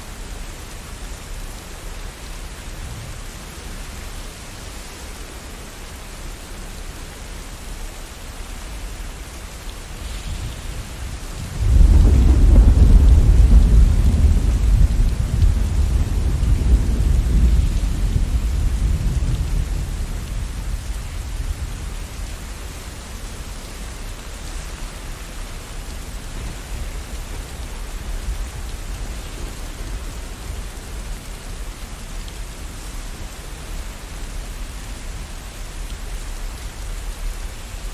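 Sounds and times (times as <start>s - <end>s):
steady rain: 0.0s - 37.9s
thunder rumbling: 10.0s - 22.8s.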